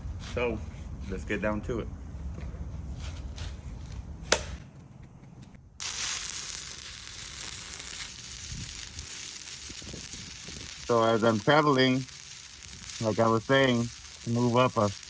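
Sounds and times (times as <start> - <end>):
welding arc crackling sizzle: 5.8 - 15.0.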